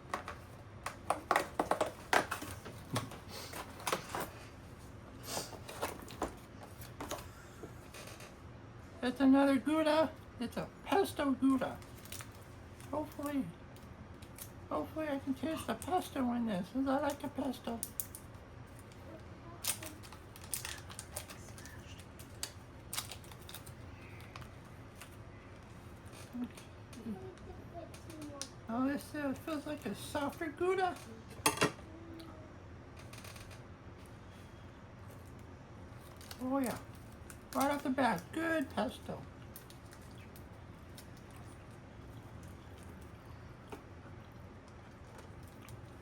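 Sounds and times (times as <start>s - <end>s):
faint low hum: 0.0s - 46.0s
packaging crinkling and clicking: 11.8s - 13.2s, 19.6s - 26.2s, 36.0s - 38.2s, 39.4s - 41.6s.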